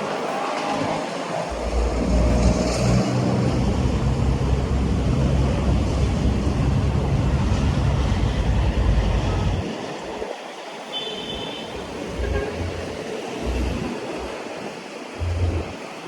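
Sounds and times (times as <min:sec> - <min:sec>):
wind buffeting microphone: 0:00.0 - 0:10.7
steady rushing hiss: 0:00.0 - 0:16.0.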